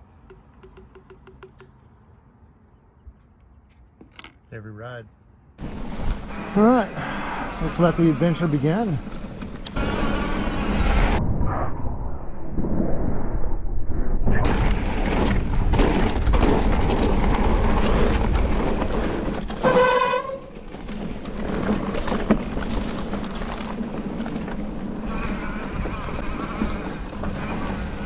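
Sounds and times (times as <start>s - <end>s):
bike rattles and knocks: 0.0s - 2.0s, 3.1s - 4.6s, 15.8s - 28.0s.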